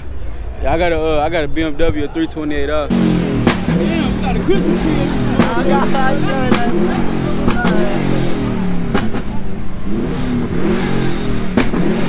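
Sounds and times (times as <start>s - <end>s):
car engine revving: 2.8s - 12.0s.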